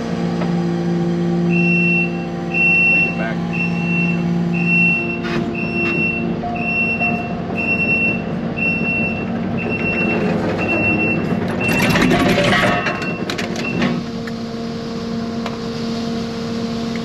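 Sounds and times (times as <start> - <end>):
engine running: 0.0 - 17.0
vehicle backup alarm beeping: 1.4 - 14.0.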